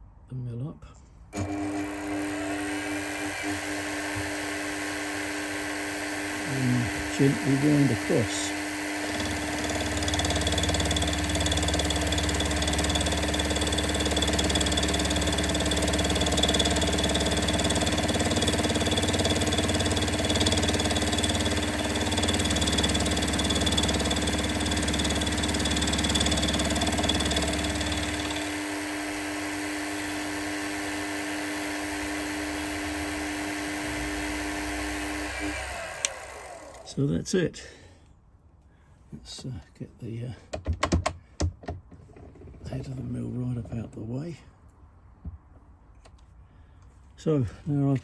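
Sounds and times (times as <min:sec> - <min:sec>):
milling machine running: 0:01.4 - 0:36.9.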